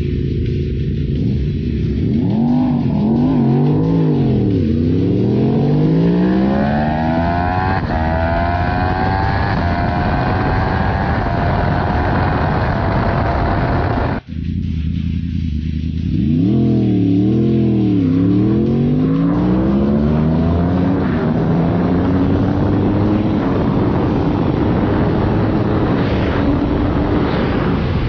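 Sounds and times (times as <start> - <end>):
motorcycle engine at full throttle: 0.0 - 28.0
wind rushing over microphone: 5.5 - 14.3, 18.2 - 28.0.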